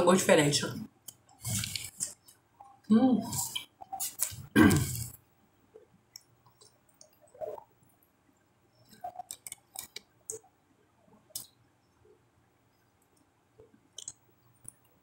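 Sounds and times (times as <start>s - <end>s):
person chewing and lip-smacking: 3.4s - 5.2s, 9.0s - 10.4s, 13.9s - 14.9s.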